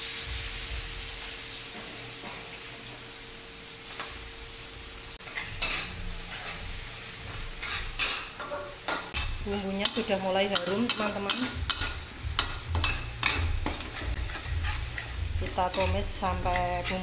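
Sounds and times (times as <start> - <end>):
spice paste sizzling in oil: 0.0 - 17.0
spatula scraping a pan: 5.2 - 17.0.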